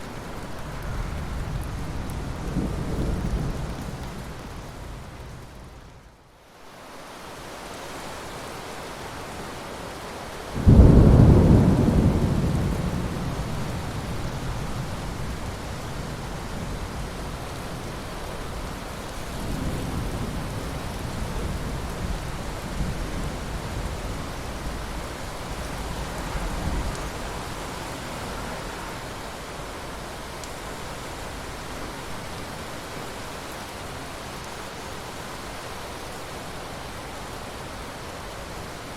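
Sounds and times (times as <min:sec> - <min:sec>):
steady rain: 0:00.0 - 0:38.9
thunder rumbling: 0:00.8 - 0:05.6, 0:10.6 - 0:27.6.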